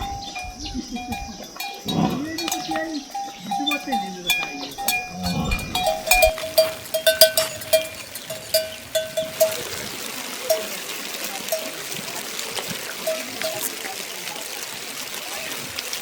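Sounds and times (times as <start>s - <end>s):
lower-pitched bell ringing: 0.0s - 9.8s
livestock bells clanking: 0.0s - 12.2s, 12.9s - 14.2s.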